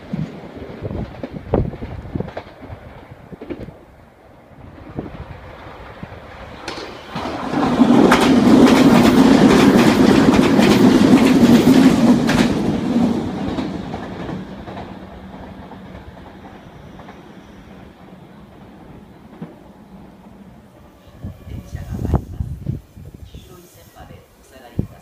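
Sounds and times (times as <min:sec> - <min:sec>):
train wheels clacking over rail joints: 0:06.6 - 0:17.3.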